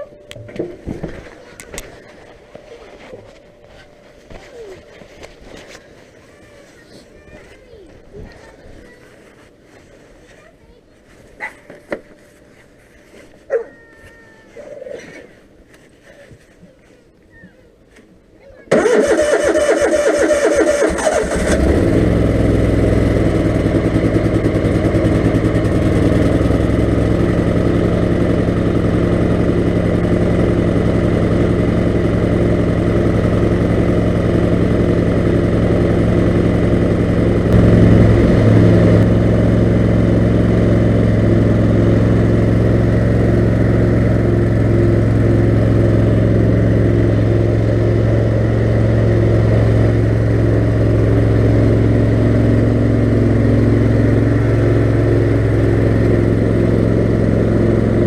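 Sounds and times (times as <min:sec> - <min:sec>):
lawn mower engine starting and idling: 0:18.7 - 0:58.0.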